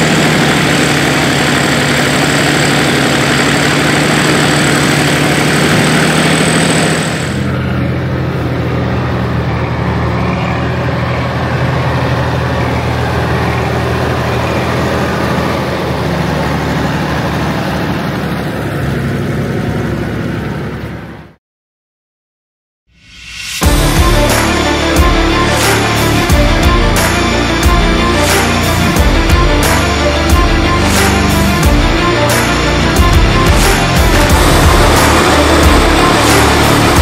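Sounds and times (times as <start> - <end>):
diesel engine running: 0.0 - 21.4, 23.6 - 37.0
high whine: 22.9 - 37.0.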